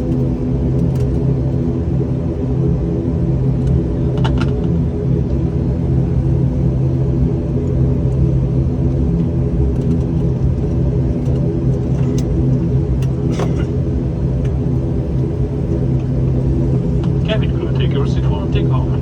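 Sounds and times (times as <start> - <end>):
airliner engine drone in cabin: 0.0 - 19.0.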